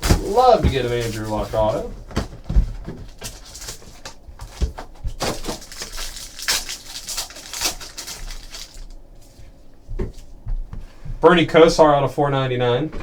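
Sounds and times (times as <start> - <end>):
card packs crinkling and rustling: 0.0 - 9.1.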